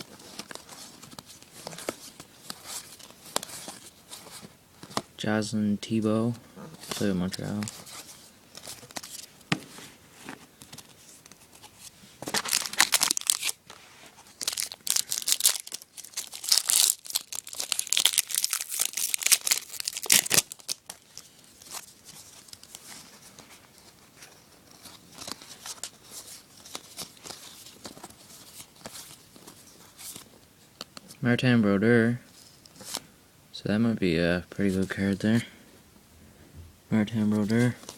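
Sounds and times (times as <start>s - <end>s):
cards and wrapper rustling: 0.0s - 5.1s, 6.8s - 31.1s
wrapper tearing and crumpling: 12.3s - 13.6s, 14.3s - 22.8s.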